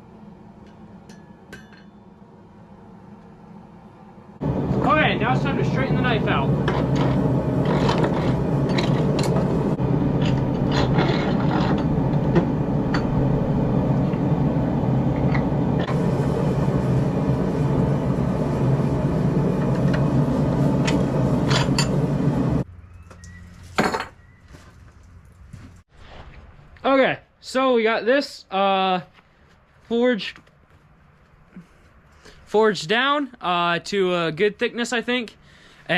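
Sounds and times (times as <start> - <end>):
faint hum: 0.0 - 23.4
machine drone: 0.0 - 23.4.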